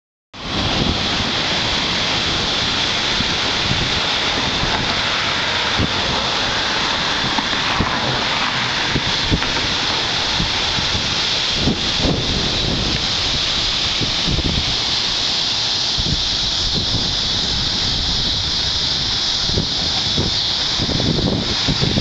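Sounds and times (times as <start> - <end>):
floodwater gushing: 0.4 - 22.0.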